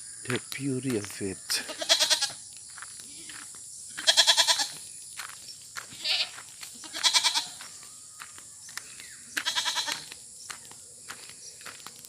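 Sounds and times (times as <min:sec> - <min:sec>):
goat bleating: 0:01.6 - 0:02.4, 0:03.1 - 0:04.8, 0:05.9 - 0:07.6, 0:09.4 - 0:10.1.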